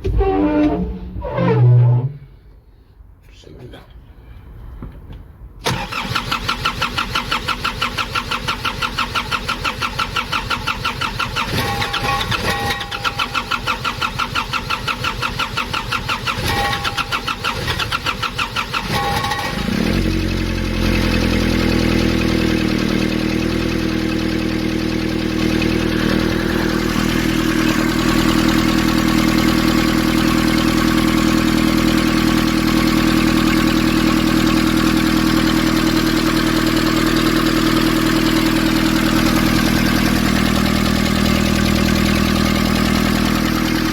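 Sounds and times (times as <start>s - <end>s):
diesel engine cranking: 5.6s - 43.9s
diesel engine idling: 20.0s - 43.9s.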